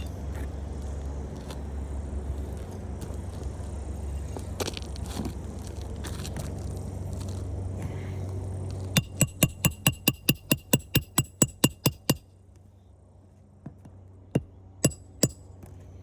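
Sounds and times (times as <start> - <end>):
hammer striking roofing nail: 9.0 - 12.2, 14.4 - 15.4.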